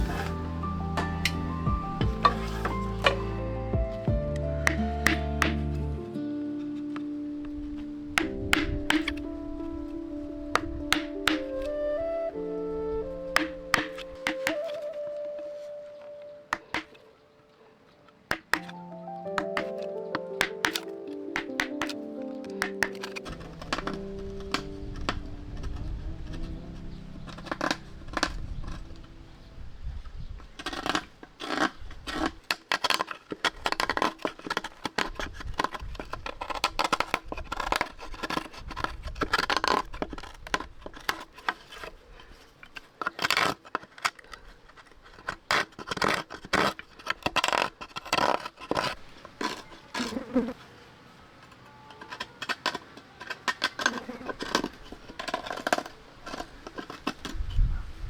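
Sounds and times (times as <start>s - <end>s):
small hard objects clicking: 10.5s - 12.0s, 13.2s - 15.0s, 18.3s - 26.6s, 30.6s - 50.2s.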